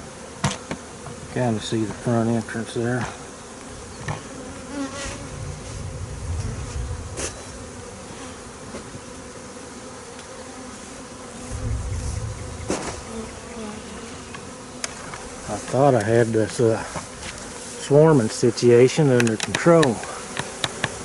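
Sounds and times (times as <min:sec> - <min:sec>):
honeybee swarm buzzing: 0:00.0 - 0:21.0
low rumble: 0:05.2 - 0:07.7, 0:11.5 - 0:13.4
sharp clicks: 0:19.2 - 0:20.9.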